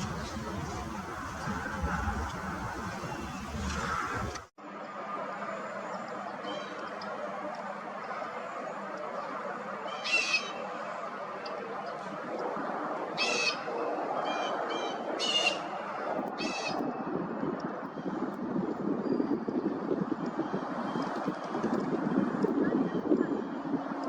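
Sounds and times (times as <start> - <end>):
background rush: 0.0 - 4.5.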